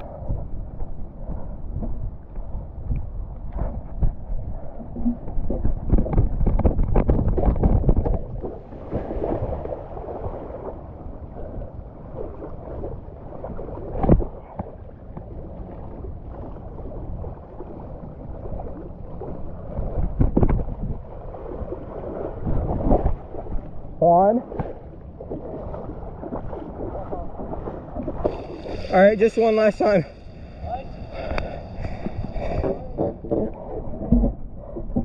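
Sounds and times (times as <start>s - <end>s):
wind buffeting microphone: 0.0s - 35.0s
splashing water: 12.2s - 33.8s.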